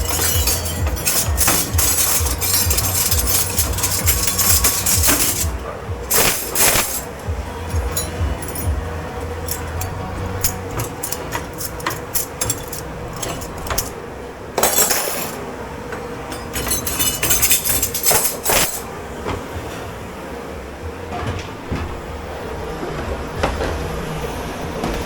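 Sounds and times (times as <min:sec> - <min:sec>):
crockery and cutlery clattering: 0:00.0 - 0:19.9.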